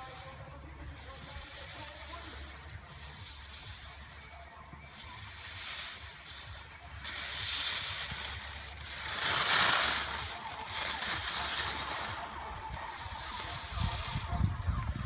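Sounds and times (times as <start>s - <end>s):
ski edges scraping on snow: 0.0s - 15.0s
wind on microphone: 9.2s - 15.0s.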